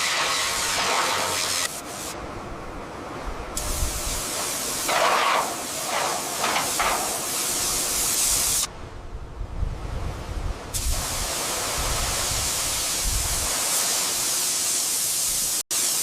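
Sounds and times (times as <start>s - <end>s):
loud hissing spray: 0.0s - 2.2s, 3.6s - 8.7s, 10.7s - 16.0s.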